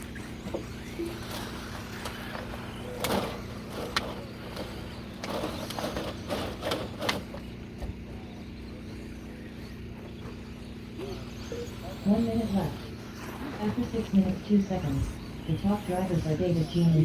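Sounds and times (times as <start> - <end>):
sharp knocks of trucks landing: 0.0 - 8.3
rc trucks racing: 0.0 - 17.0
steady low hum: 0.0 - 17.0.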